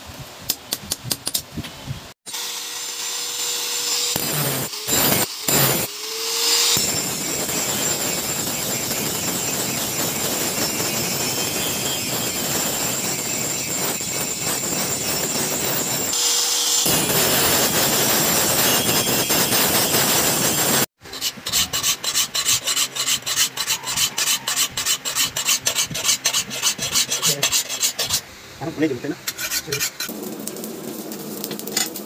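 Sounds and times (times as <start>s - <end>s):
abrasive rasping on tool edge: 21.1s - 28.2s, 29.3s - 30.1s
hand filing strokes: 21.1s - 28.2s, 29.3s - 30.1s.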